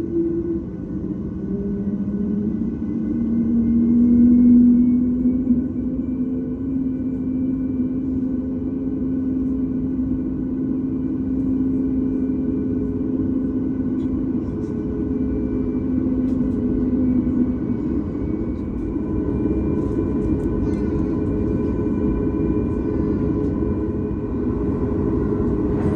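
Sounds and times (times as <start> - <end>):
airplane engines idling drone: 0.0 - 25.9
cabin air noise: 13.8 - 25.9.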